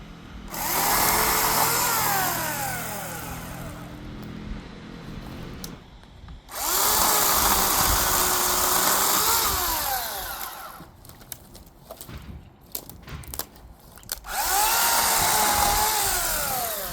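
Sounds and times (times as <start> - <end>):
chainsaw cutting wood: 0.5 - 4.1, 6.5 - 11.3, 12.0 - 16.9.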